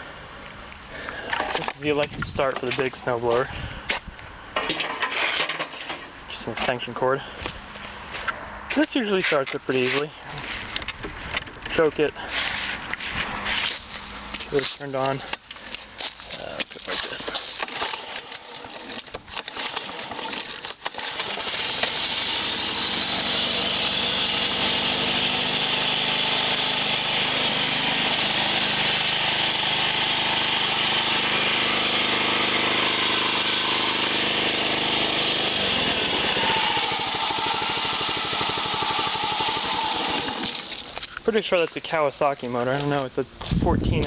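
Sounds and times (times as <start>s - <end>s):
electric starter cranking: 15.4s - 41.2s
snowblower engine running: 16.0s - 41.1s.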